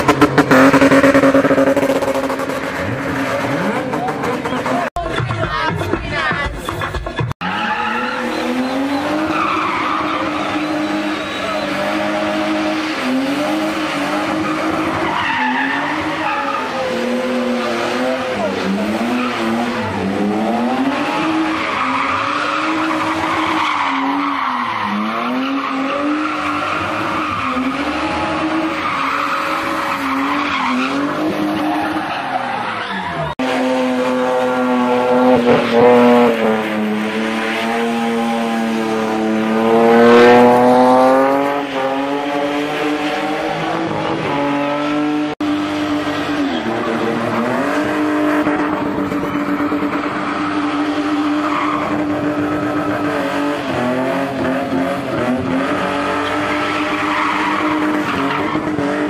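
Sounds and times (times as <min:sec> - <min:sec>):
car engine revving: 0:00.0 - 0:05.1, 0:05.7 - 0:59.0
tyres squealing on tarmac: 0:07.4 - 0:40.5, 0:45.8 - 0:58.8.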